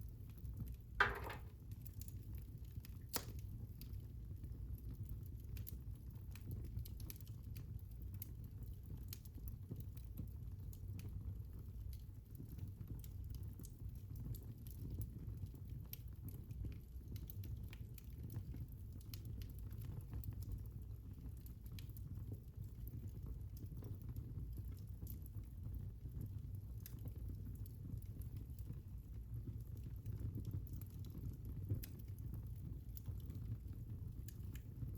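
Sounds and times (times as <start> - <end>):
fire crackling and popping: 0.0 - 34.9
low rumble of flames: 0.0 - 34.9.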